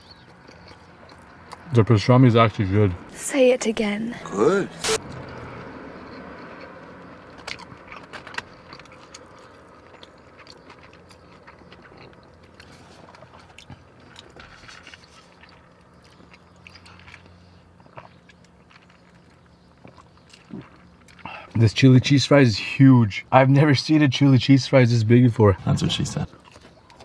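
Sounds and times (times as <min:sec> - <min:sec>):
chewing food: 0:00.0 - 0:01.9, 0:05.0 - 0:21.6, 0:26.2 - 0:27.0.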